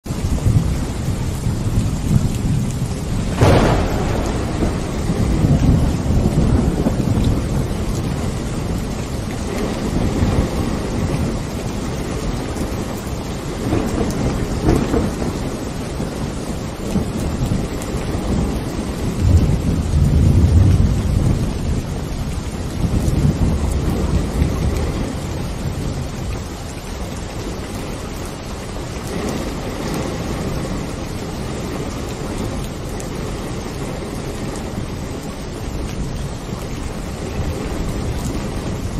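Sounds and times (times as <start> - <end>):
steady rain: 0.0 - 38.9
thunder: 0.3 - 26.4.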